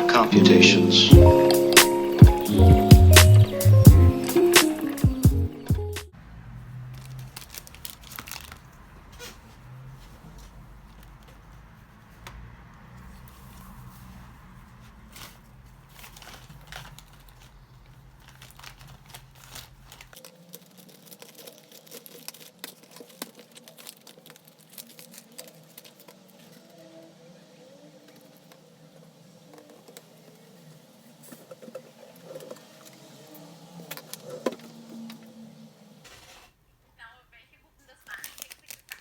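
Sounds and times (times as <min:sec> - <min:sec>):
small objects clicking and clattering: 0:06.9 - 0:08.8, 0:15.1 - 0:26.8, 0:38.0 - 0:39.0.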